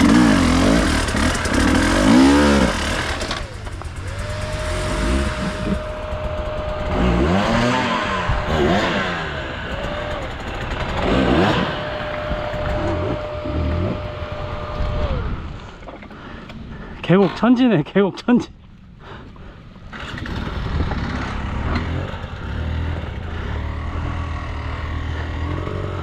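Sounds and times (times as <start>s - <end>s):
motorcycle engine revving: 0.0s - 15.8s, 19.9s - 26.0s
wind noise on microphone: 11.8s - 15.9s.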